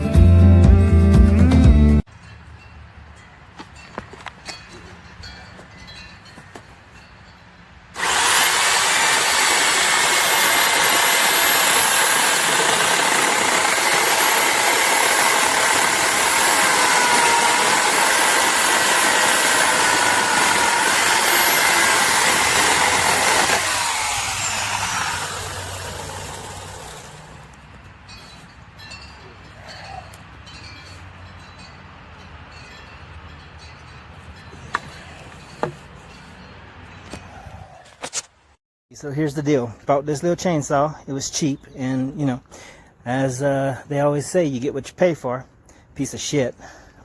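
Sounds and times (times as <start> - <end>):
electric chainsaw whining: 8.0 - 27.6.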